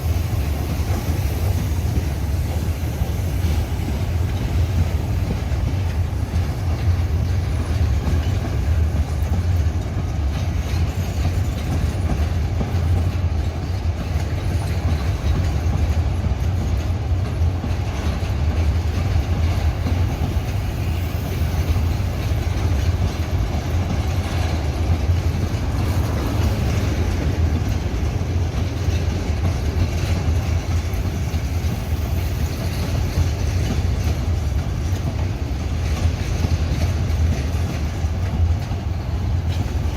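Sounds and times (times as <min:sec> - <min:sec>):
freight train rumbling past: 0:00.0 - 0:39.9
wheels on rails: 0:00.0 - 0:39.9.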